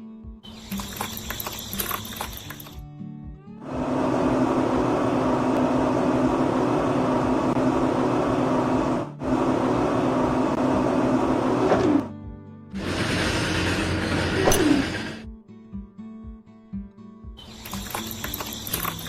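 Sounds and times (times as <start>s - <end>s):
small motor humming: 0.5s - 2.8s, 17.4s - 19.0s.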